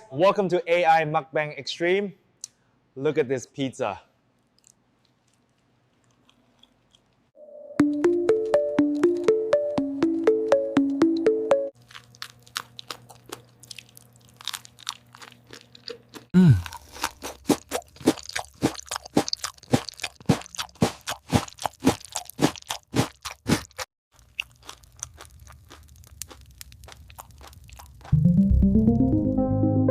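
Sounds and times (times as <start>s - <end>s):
crunching and chewing pizza: 4.4s - 7.4s, 11.8s - 28.2s.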